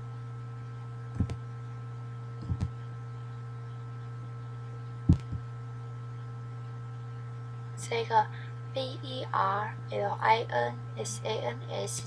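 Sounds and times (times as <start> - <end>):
low electrical hum: 0.0 - 12.0
mouse double clicks: 1.2 - 1.4.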